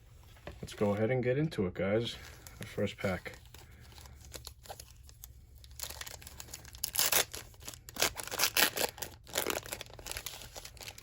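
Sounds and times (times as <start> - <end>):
wrapper tearing and crinkling: 4.2 - 11.0.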